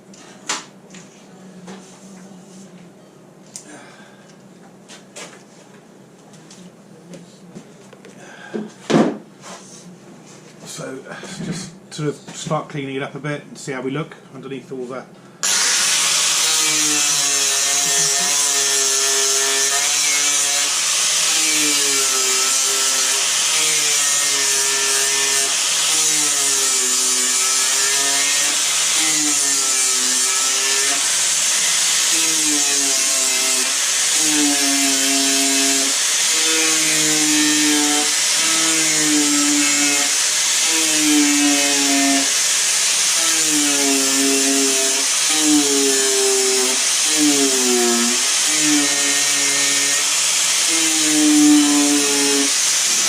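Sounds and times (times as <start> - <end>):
power tool motor running: 15.4 - 53.0.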